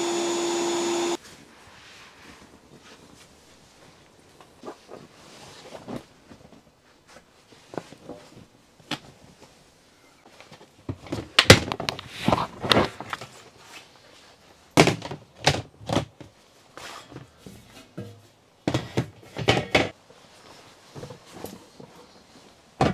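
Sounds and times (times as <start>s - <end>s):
knocks and thuds of handling: 10.3s - 13.4s, 17.1s - 22.0s.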